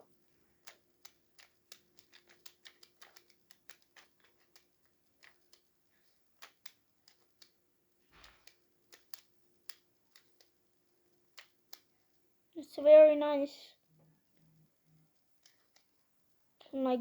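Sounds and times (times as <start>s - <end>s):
plastic puzzle clicking: 0.6s - 5.7s, 6.3s - 7.6s, 8.2s - 10.6s, 11.3s - 11.9s, 15.4s - 16.0s
plastic puzzle scraping: 1.4s - 5.6s.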